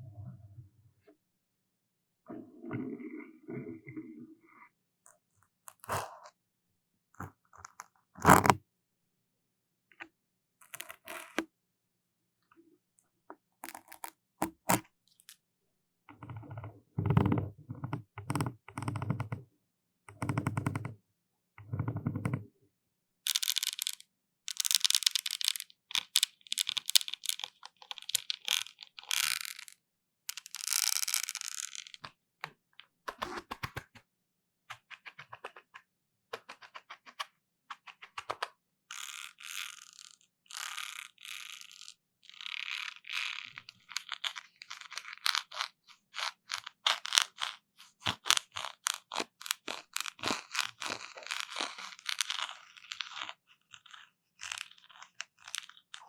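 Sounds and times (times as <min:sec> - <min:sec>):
clicks and crackles at microphone: 0:07.2 - 0:08.6, 0:16.1 - 0:19.4, 0:30.4 - 0:34.1, 0:34.7 - 0:38.6.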